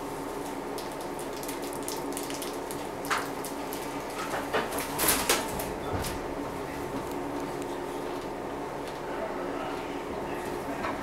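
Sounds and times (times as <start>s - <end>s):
train interior hum: 2.9s - 11.0s.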